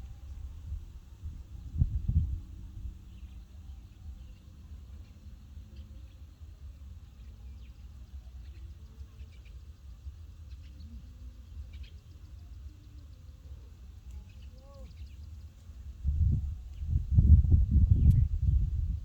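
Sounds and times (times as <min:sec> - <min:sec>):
steady low rumble: 0:00.0 - 0:07.2, 0:15.8 - 0:19.0.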